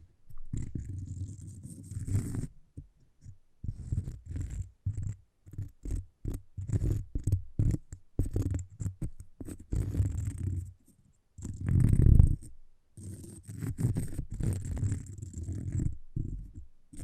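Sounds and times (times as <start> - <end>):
tapping and scratching on cork: 0.0 - 10.8, 11.4 - 17.0.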